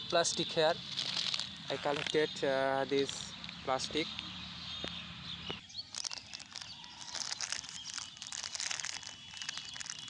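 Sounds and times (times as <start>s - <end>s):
plastic litter crinkling: 0.9s - 2.1s, 5.8s - 10.0s.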